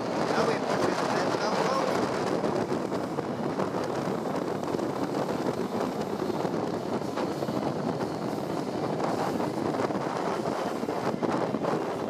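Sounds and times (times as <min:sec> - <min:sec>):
train running on track: 0:00.0 - 0:12.0
wind buffeting microphone: 0:00.0 - 0:12.0.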